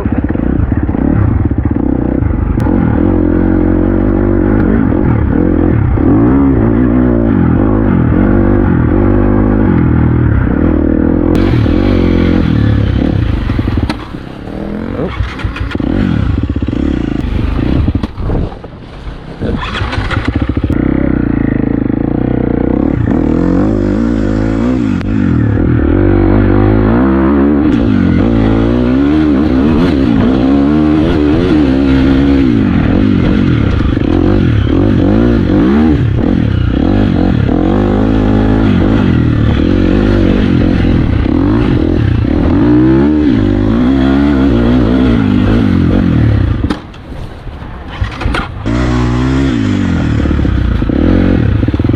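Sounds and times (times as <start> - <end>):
dirt bike engine revving: 0.0 - 18.5, 19.3 - 46.8, 47.9 - 51.9.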